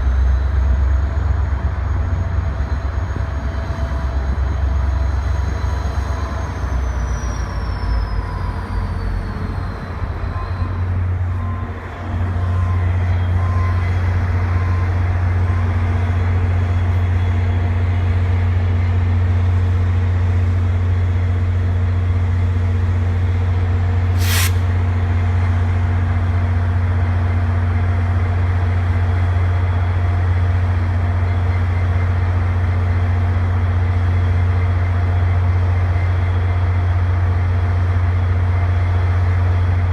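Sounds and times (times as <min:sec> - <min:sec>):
diesel locomotive drone: 0:00.0 - 0:39.9
sharp hiss of air: 0:24.1 - 0:24.8.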